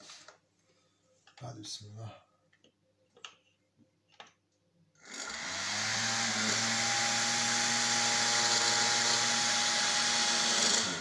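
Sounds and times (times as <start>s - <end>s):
hair dryer running: 5.1s - 11.0s.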